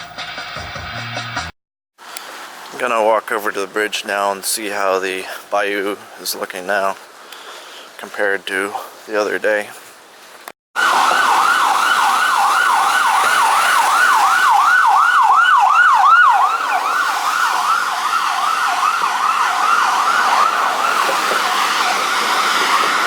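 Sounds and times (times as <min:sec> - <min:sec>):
emergency siren yelping: 0:10.8 - 0:23.0.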